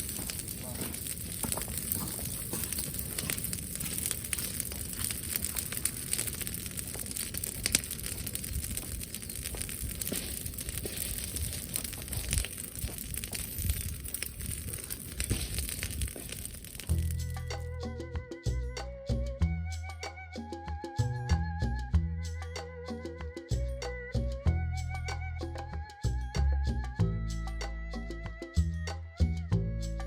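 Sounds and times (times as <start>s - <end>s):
bonfire crackling and popping: 0.0s - 19.3s
wind on microphone: 6.7s - 17.2s.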